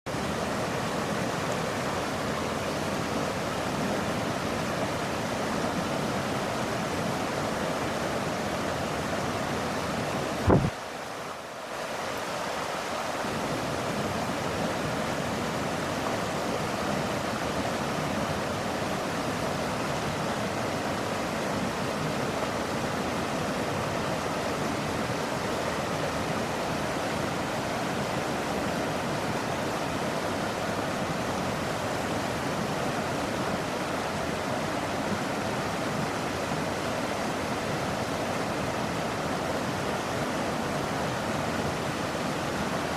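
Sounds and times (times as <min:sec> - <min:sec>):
running water rushing: 0:00.1 - 0:42.9
thump: 0:10.5 - 0:10.7.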